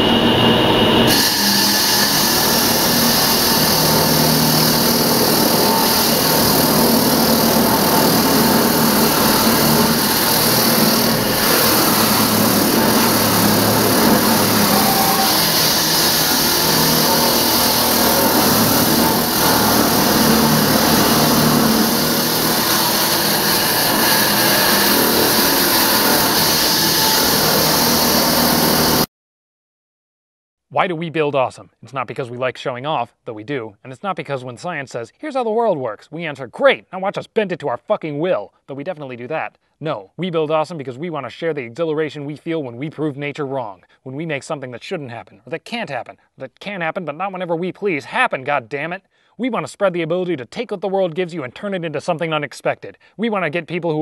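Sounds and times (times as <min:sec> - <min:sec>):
concrete saw cutting concrete: 0:00.0 - 0:29.1.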